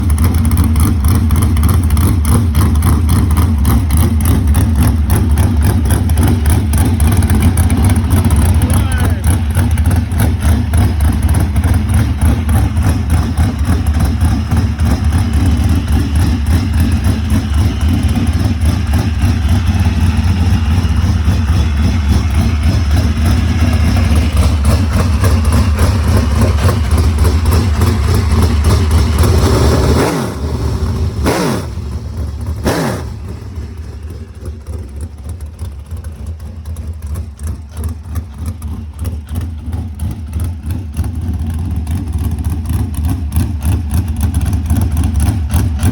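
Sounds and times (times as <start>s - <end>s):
race car engine revving: 0.0s - 36.0s.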